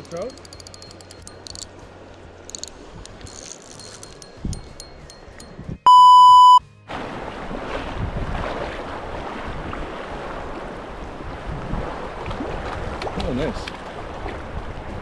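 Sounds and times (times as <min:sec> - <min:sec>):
high censor beep: 0:05.9 - 0:06.6.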